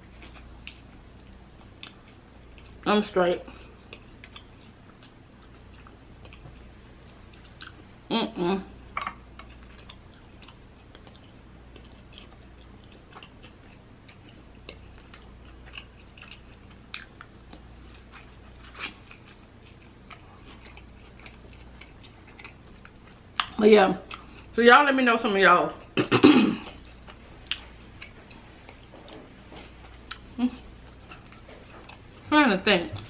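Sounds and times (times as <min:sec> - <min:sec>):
crunchy taco chewing: 0:09.0 - 0:24.5.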